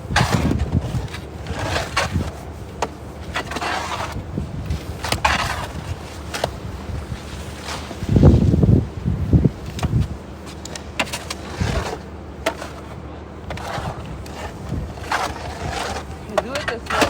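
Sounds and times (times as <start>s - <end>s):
snow shovel scraping snow: 0.0s - 17.0s.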